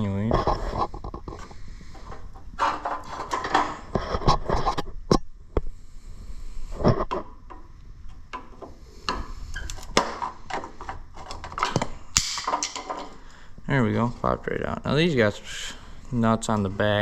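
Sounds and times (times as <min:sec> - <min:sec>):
clicks knocks and scrapes: 0:00.2 - 0:05.2, 0:06.7 - 0:13.2.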